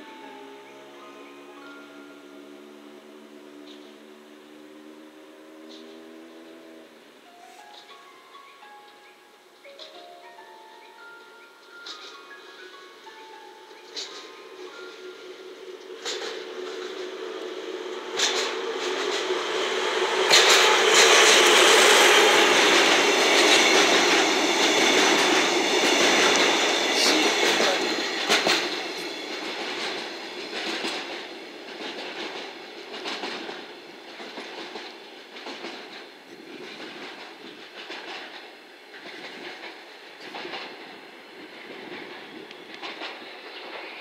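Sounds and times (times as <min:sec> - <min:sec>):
diesel locomotive passing: 0:00.0 - 0:44.0
train wheels clickety-clack: 0:03.6 - 0:04.0, 0:11.0 - 0:44.0.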